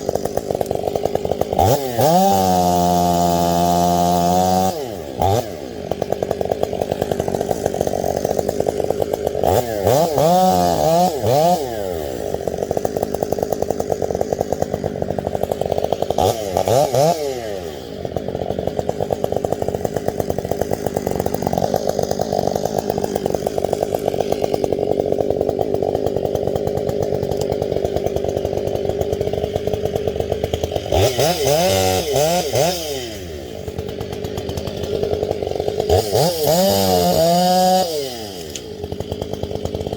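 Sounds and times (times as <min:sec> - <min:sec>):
chainsaw running at full throttle: 0:00.0 - 0:39.9.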